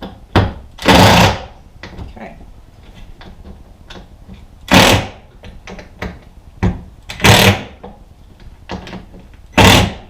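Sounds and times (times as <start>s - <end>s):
power drill driving screws: 0.8s - 1.4s, 4.7s - 5.2s, 7.2s - 7.7s, 9.6s - 10.0s.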